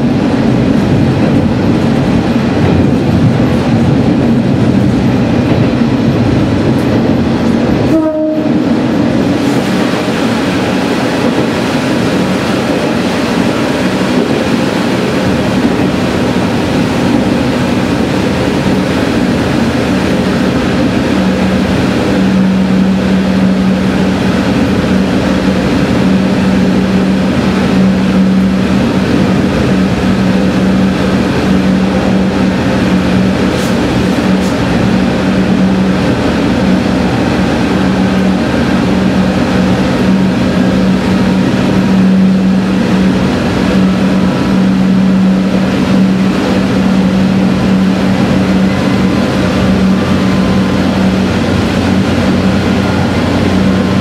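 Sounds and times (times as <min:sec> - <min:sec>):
railcar engine drone: 0:00.0 - 0:54.0
train running rumble: 0:00.0 - 0:54.0.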